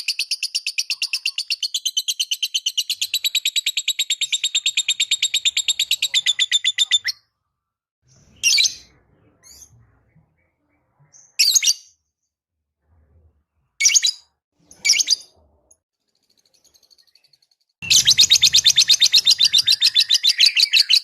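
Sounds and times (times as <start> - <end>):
bird squawks: 4.9 - 7.2
lovebird chattering high chirps: 17.8 - 21.0.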